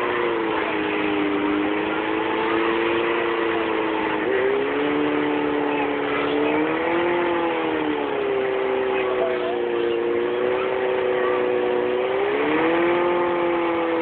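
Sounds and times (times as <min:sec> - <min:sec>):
truck engine revving high: 0:00.0 - 0:14.0.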